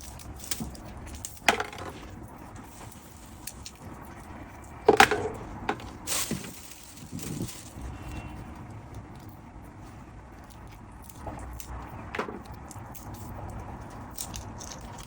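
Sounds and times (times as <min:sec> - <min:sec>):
food snapping and clicking: 0:10.4 - 0:15.0.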